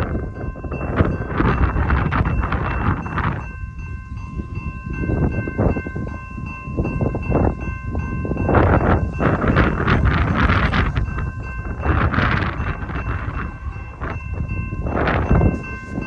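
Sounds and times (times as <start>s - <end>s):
freight train rumbling past: 0.0s - 16.0s
wind on microphone: 0.0s - 16.0s
train horn chord: 13.1s - 16.0s.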